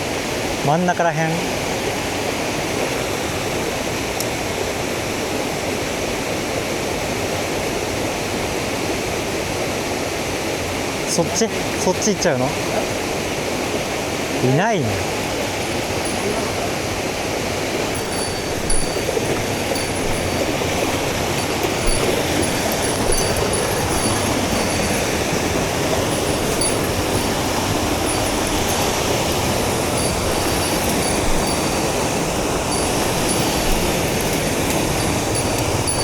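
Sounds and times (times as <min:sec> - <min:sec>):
stream water rushing over rocks: 0:00.0 - 0:36.0.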